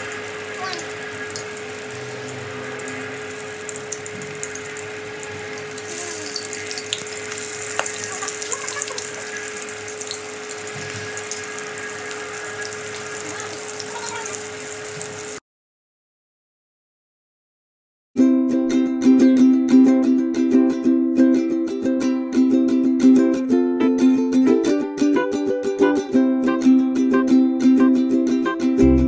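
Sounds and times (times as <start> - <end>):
spring rolls sizzling in oil: 0.0 - 15.4.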